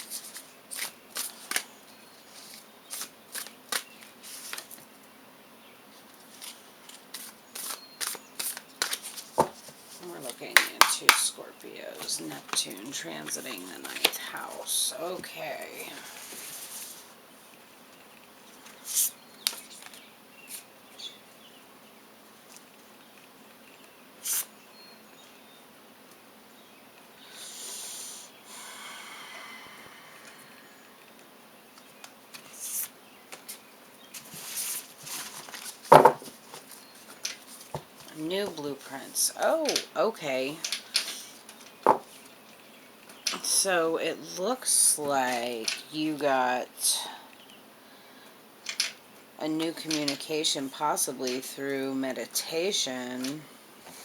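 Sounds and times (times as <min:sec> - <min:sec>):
cards being shuffled: 0:00.0 - 0:04.9, 0:06.2 - 0:11.3
cards sliding swishes: 0:06.4 - 0:09.4, 0:24.2 - 0:24.5.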